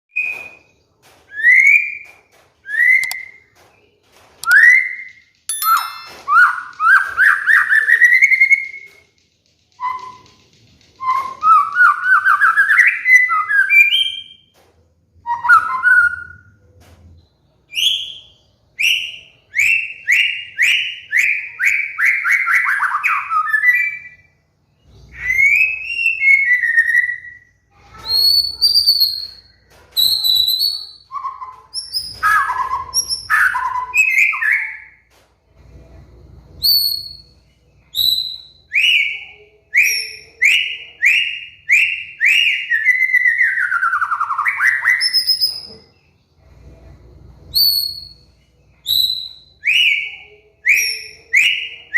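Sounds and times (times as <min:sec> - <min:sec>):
bird singing whistled phrases: 0:01.3 - 0:03.4, 0:04.4 - 0:08.9, 0:09.7 - 0:10.4, 0:11.0 - 0:14.4, 0:24.9 - 0:35.0, 0:36.6 - 0:45.9, 0:47.5 - 0:51.9.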